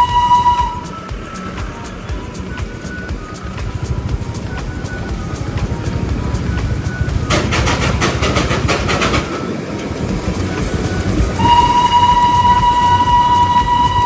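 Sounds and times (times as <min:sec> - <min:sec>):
train horn blast: 0:00.0 - 0:01.5, 0:11.0 - 0:14.0
steady low rumble: 0:00.0 - 0:14.0
train clattering: 0:00.0 - 0:14.0.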